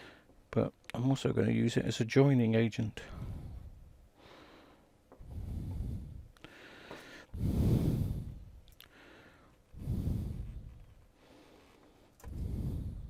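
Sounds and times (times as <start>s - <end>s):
heavy breaths: 0.0s - 0.4s, 3.0s - 13.0s.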